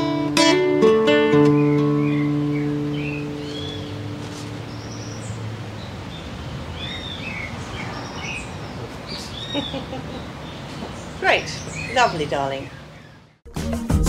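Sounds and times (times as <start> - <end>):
classical guitar chord: 0.0 - 5.2
outdoor background noise: 0.0 - 13.4
small birds chirping: 1.2 - 13.4.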